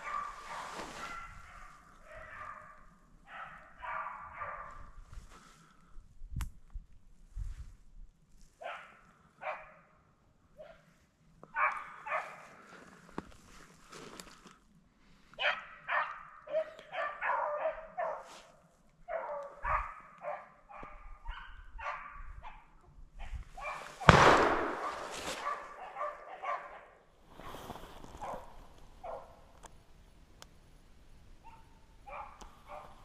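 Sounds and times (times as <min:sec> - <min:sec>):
loud sharp bang: 0:24.0 - 0:25.5.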